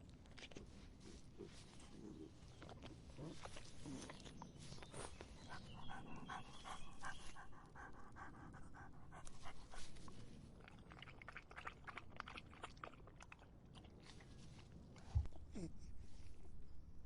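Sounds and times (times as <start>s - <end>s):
dog lapping water: 9.2s - 14.3s.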